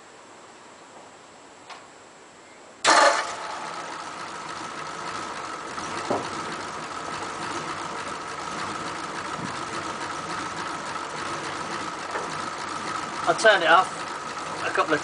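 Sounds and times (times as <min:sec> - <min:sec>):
engine knock: 0:02.9 - 0:15.0
truck engine idling: 0:02.9 - 0:15.0.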